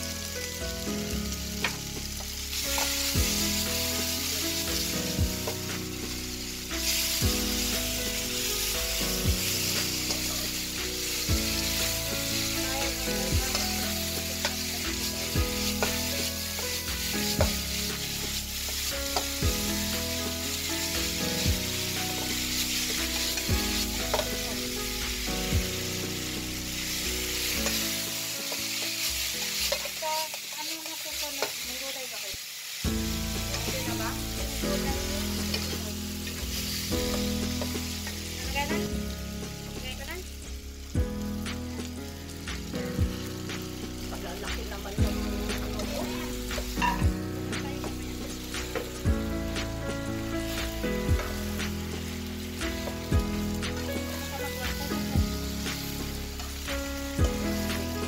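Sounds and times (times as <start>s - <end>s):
slow beat background music: 0.0s - 30.6s, 32.8s - 58.0s
noodles sizzling in frying pan: 0.0s - 58.0s
spatula stirring in pan: 1.6s - 32.0s, 32.8s - 38.9s.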